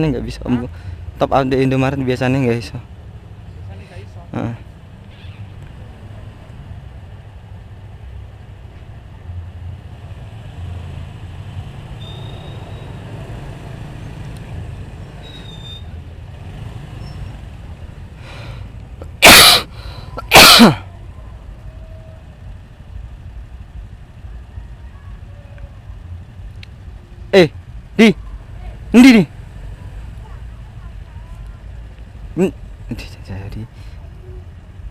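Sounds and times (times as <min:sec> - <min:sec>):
low rumble of traffic: 0:00.0 - 0:34.9
loud short bursts: 0:19.2 - 0:20.9.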